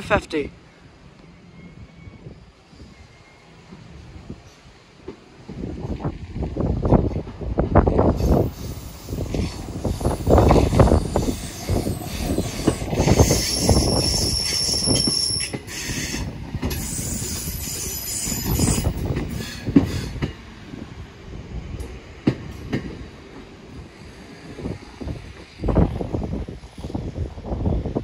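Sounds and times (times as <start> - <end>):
high-pitched squeal: 8.3 - 15.6.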